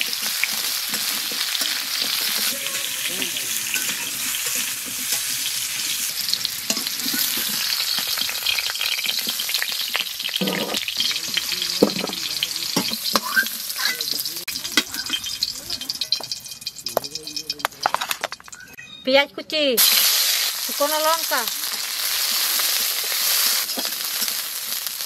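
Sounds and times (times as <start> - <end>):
radish sizzling in hot oil: 0.0 - 18.8, 19.8 - 25.0
metal spoon scraping pan: 0.1 - 9.7, 10.3 - 18.5.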